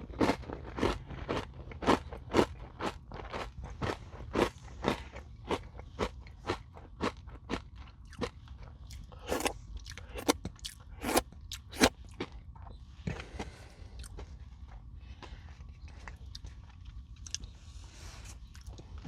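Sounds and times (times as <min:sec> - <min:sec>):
crunchy chewing: 0:09.2 - 0:11.9.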